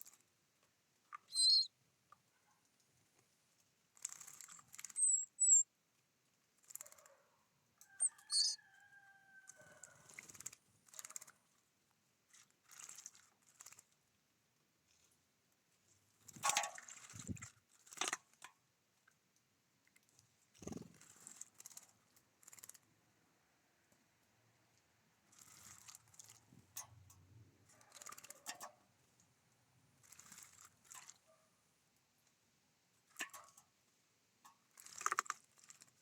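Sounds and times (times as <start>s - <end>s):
birds pecking seeds: 0.0s - 0.3s, 3.9s - 5.6s, 6.6s - 7.3s, 7.9s - 11.5s, 20.5s - 22.9s, 25.3s - 28.8s.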